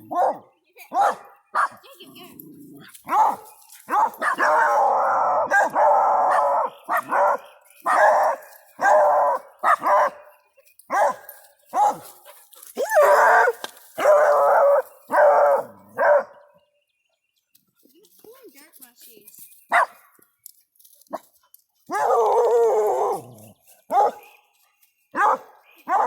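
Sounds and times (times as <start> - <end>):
dogs barking: 0.0 - 2.0, 3.0 - 16.6, 19.7 - 20.1, 21.9 - 24.3, 25.1 - 26.0
hound dogs baying and howling: 3.0 - 16.6, 21.9 - 24.4, 25.1 - 26.0.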